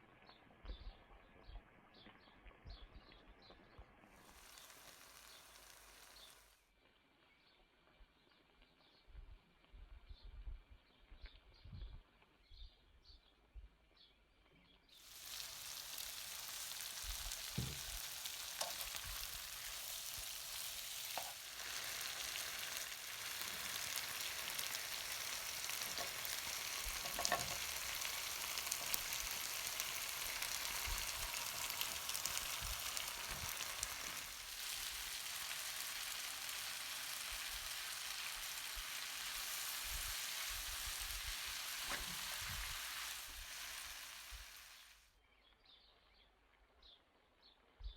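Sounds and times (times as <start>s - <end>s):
food sizzling in a pan: 4.1s - 6.6s, 15.0s - 45.1s
utensil knocking on pan: 17.5s - 18.9s, 25.8s - 28.0s.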